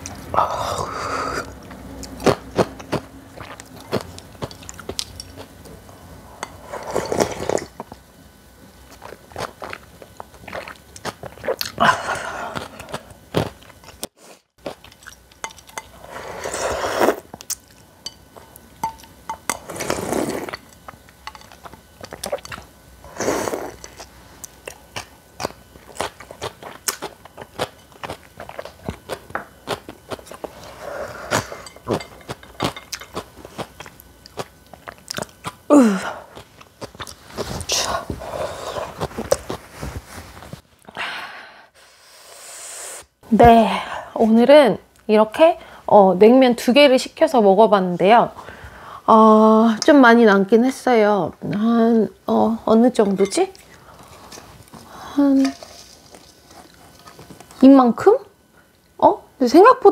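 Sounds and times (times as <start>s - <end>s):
chewing and crunching food: 1.4s - 5.8s, 8.8s - 16.4s, 17.3s - 40.6s, 53.3s - 57.7s.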